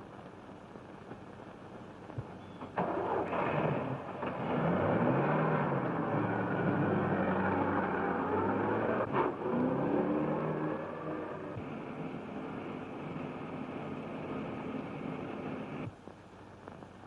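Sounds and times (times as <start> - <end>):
car engine starting and running: 2.6 - 15.9.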